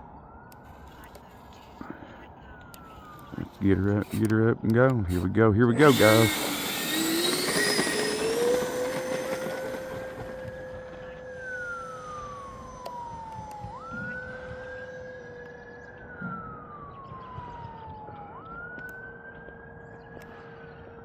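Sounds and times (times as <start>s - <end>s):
wailing siren: 0.0s - 21.0s
steady hum: 4.9s - 16.2s.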